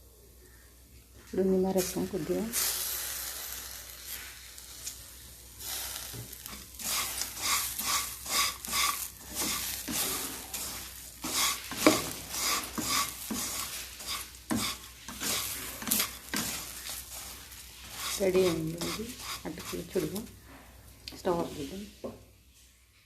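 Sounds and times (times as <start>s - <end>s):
spatula scraping metal pan: 5.6s - 20.5s.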